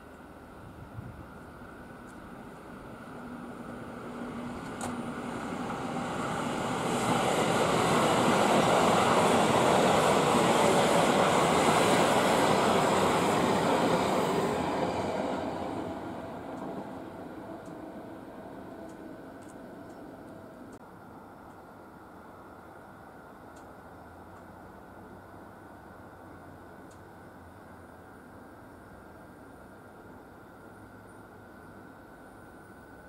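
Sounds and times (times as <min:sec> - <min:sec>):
train wheels rumbling on rail: 0:00.0 - 0:20.8.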